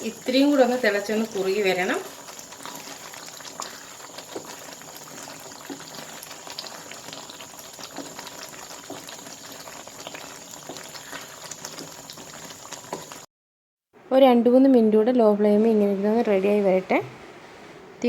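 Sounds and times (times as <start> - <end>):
gravy simmering and popping: 0.0 - 13.3.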